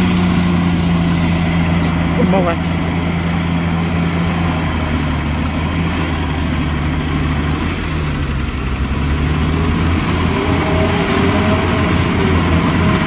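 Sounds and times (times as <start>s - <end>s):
heavy diesel engine droning: 0.0s - 13.0s.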